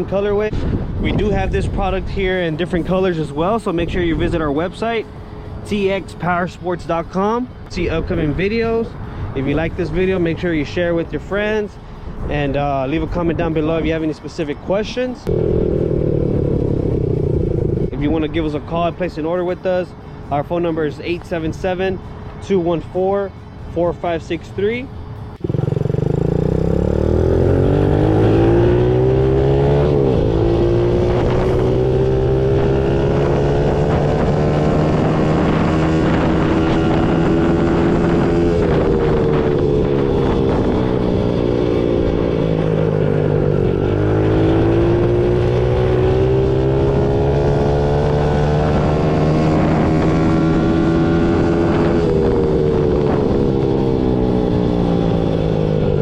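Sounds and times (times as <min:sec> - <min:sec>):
dirt bike engine running: 0:15.3 - 0:18.2.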